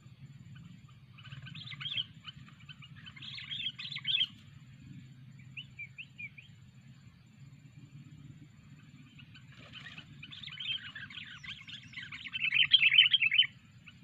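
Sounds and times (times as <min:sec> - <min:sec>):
bird chirping: 0:00.0 - 0:14.0
steady low hum: 0:00.0 - 0:14.0.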